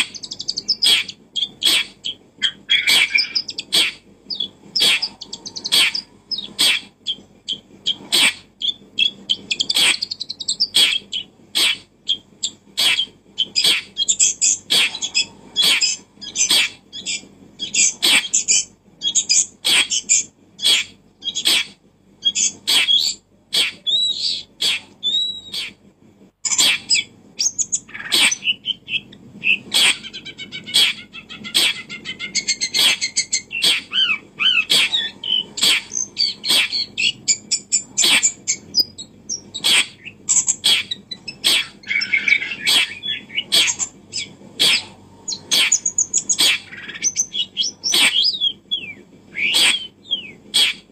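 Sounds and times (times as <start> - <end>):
birds chirping and calling: 0.0 - 25.8, 26.4 - 50.9.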